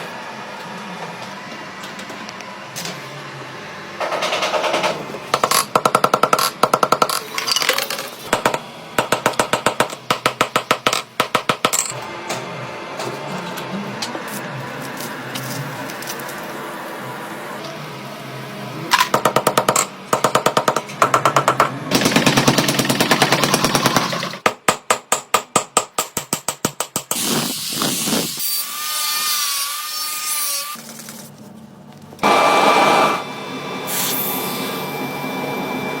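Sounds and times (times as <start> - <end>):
steady machine noise: 1.9 - 7.4, 32.2 - 36.0
rapid-fire power tool strikes: 19.1 - 24.9.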